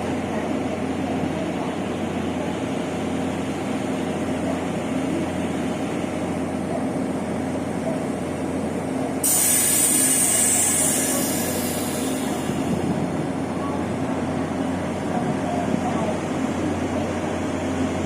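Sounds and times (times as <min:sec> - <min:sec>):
train humming: 0:00.0 - 0:18.0
loud hiss: 0:09.2 - 0:12.7.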